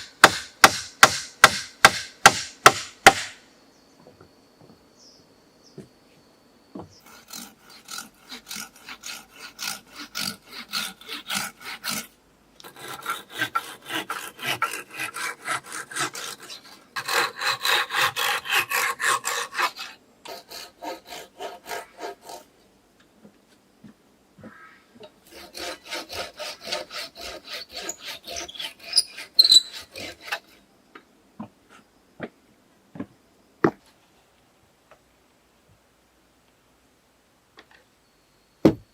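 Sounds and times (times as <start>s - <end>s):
hand saw cutting wood: 0.0s - 3.4s, 7.0s - 22.5s, 25.2s - 30.6s.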